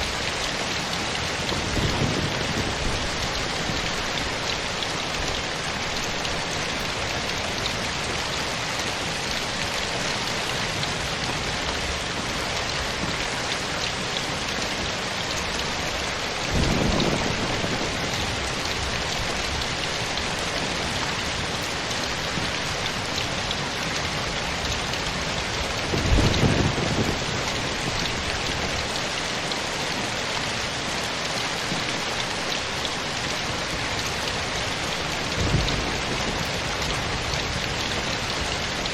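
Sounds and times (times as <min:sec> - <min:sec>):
steady rain hissing: 0:00.0 - 0:38.9
low rumble of thunder: 0:01.3 - 0:05.6, 0:16.4 - 0:22.6, 0:25.1 - 0:29.3, 0:34.8 - 0:38.9.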